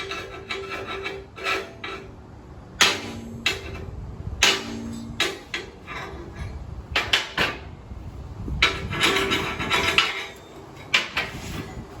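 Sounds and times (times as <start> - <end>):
metal scraping: 0.0 - 12.0
metal plate knocks: 2.8 - 6.1, 6.9 - 7.7.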